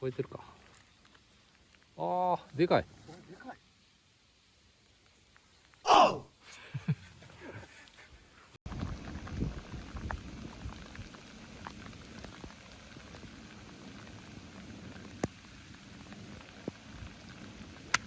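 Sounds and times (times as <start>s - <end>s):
steady rain: 8.7s - 18.0s
wind rumble on microphone: 8.7s - 18.0s.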